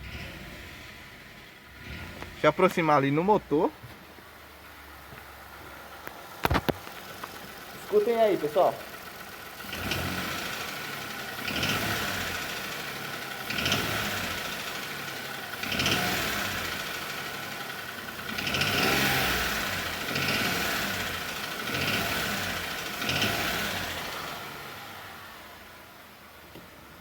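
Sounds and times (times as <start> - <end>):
car engine revving in blips: 0.0 - 2.9, 9.2 - 25.4.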